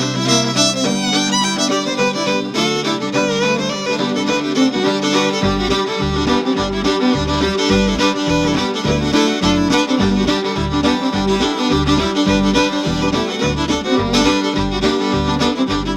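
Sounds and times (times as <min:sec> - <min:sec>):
instrumental music with fiddle lead: 0:00.0 - 0:15.9
pulsing bass: 0:05.3 - 0:15.9.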